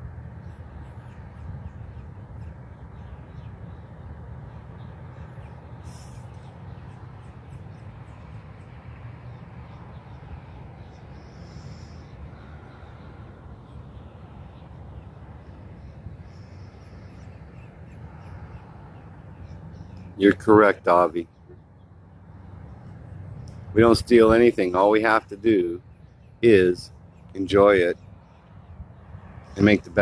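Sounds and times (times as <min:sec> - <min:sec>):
faint bird calls: 0:00.4 - 0:21.9.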